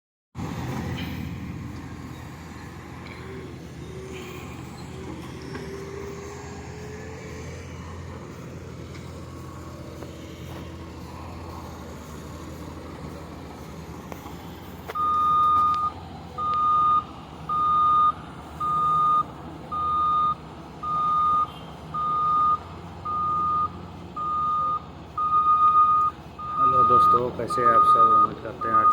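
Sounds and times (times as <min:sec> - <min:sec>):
low engine rumble: 0:00.4 - 0:28.9
reversing alarm beeping: 0:15.0 - 0:28.9.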